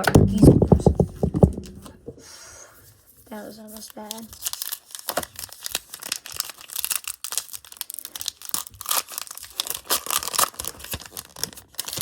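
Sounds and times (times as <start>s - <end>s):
card pack wrapper tearing: 3.8s - 12.0s.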